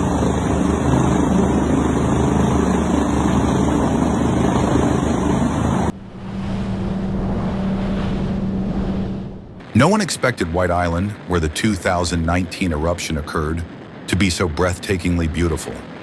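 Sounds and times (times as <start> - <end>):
helicopter rotor beating: 0.0 - 7.7
constant low hum: 0.0 - 16.0.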